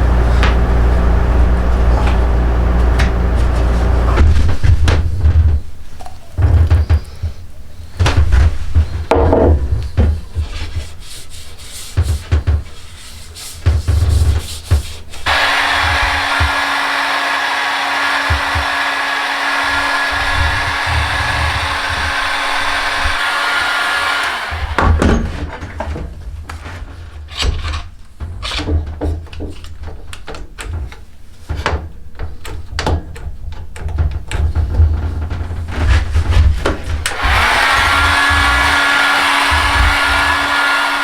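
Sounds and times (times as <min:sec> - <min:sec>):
electric blower motor whirring: 0:00.0 - 0:04.7, 0:15.2 - 0:25.2, 0:37.0 - 0:41.0
hand tools knocking on wood: 0:08.0 - 0:10.5, 0:14.7 - 0:25.2
hand tools scraping wood: 0:08.2 - 0:25.7, 0:34.4 - 0:41.0.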